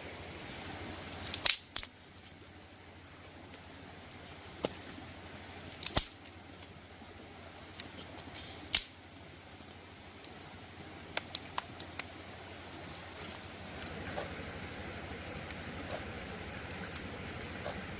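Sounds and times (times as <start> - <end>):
faint steady hiss: 0.0 - 17.9
sharp clicks and snaps: 1.2 - 1.9, 5.8 - 6.3, 7.7 - 9.0, 11.1 - 12.1.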